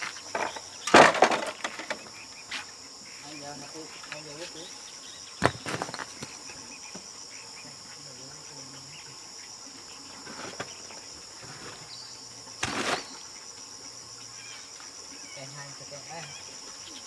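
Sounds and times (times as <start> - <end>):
insect chorus trilling: 0.0 - 17.0
rustling scrape: 10.1 - 13.3.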